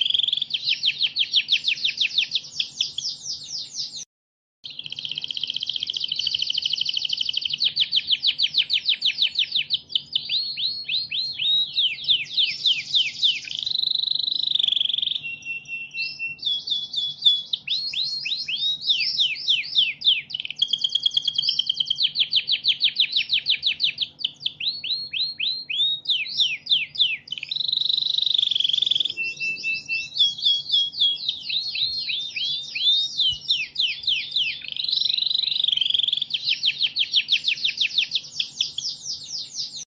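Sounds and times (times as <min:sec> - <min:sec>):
recorded songbird song: 0:00.0 - 0:39.9.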